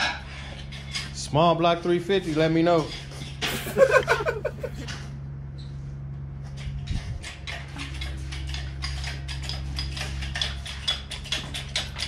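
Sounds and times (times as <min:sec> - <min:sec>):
steady low hum: 0:03.4 - 0:05.5.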